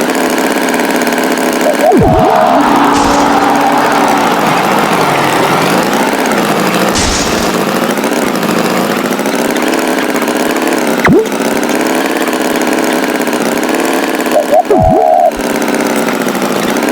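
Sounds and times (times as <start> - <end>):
tractor engine running: 0.0 - 16.9
loud falling swoop: 1.7 - 7.8.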